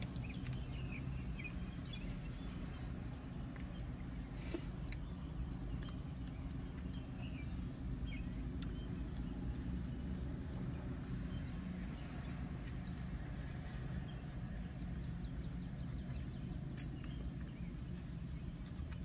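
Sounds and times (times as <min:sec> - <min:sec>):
chewing: 0:00.0 - 0:01.1, 0:04.8 - 0:07.2, 0:08.4 - 0:11.5, 0:15.2 - 0:19.0
steady low rumble: 0:00.0 - 0:19.0.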